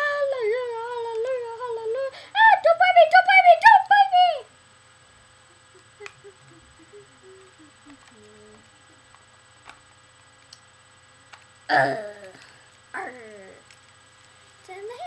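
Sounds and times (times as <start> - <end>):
person humming a tune: 5.4 - 9.0, 11.7 - 13.6.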